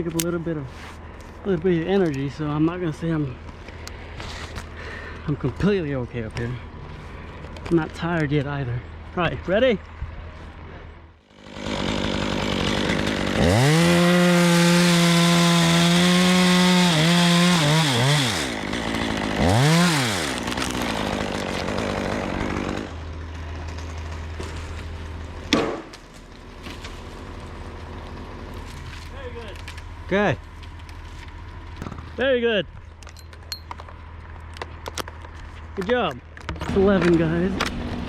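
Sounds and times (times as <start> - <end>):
chainsaw cutting wood: 11.3 - 29.9.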